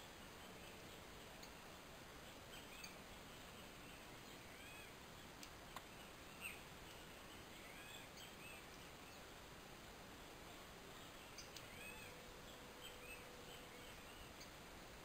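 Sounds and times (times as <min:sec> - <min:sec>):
faint bird chirps: 0:00.0 - 0:15.0
steady low hiss: 0:00.0 - 0:15.0
sharp tick: 0:05.4 - 0:05.9.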